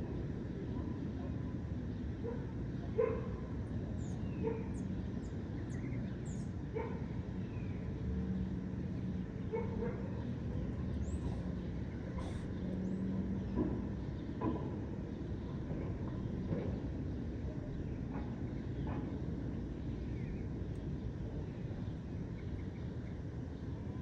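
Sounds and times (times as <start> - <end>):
low traffic rumble: 0.0 - 24.0
birds chirping: 2.0 - 24.0
dog barking: 2.2 - 3.4, 4.4 - 4.8, 6.8 - 7.1, 9.5 - 10.3.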